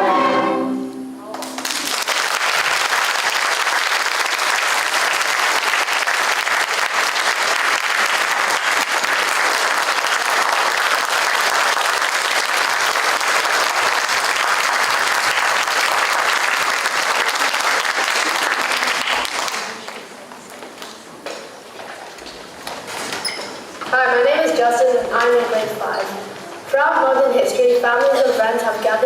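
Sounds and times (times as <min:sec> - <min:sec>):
audience applauding: 0:01.4 - 0:20.2.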